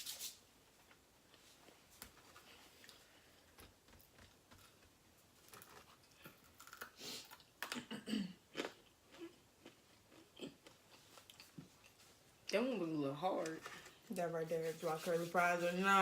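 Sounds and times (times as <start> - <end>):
chewing crunchy fries: 5.5 - 7.9, 8.5 - 12.0.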